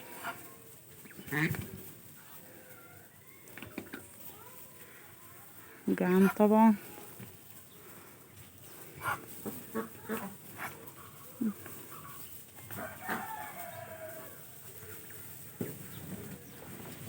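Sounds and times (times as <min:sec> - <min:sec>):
ducks pecking clicks: 0:00.1 - 0:04.2.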